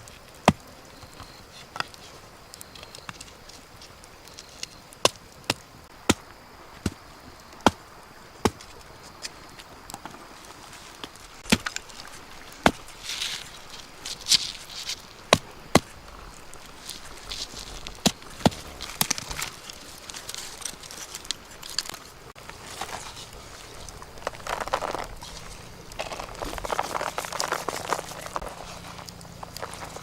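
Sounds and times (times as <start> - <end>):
short rustle: 10.1 - 30.0.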